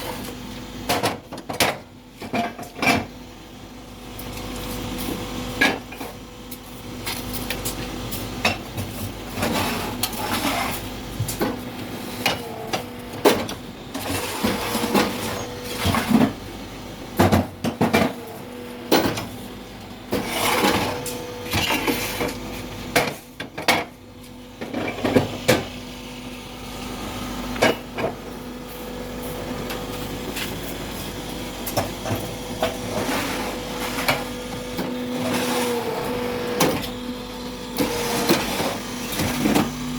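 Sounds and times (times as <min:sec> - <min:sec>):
machine motor hum: 0:10.8 - 0:39.9.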